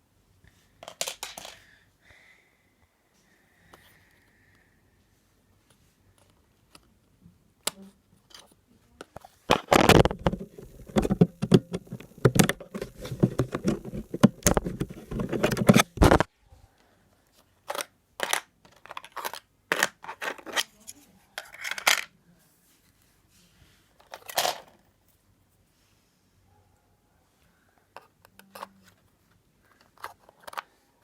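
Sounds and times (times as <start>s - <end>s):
plastic parts clicking and scraping: 0.8s - 1.6s, 7.6s - 16.3s, 17.6s - 22.1s, 24.0s - 24.8s, 27.9s - 30.8s.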